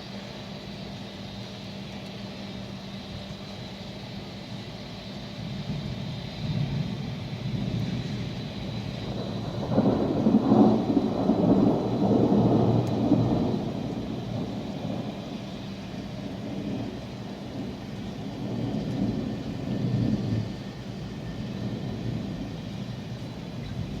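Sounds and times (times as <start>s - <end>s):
steady rain: 0.0s - 24.0s
thunder rumbling: 5.4s - 24.0s.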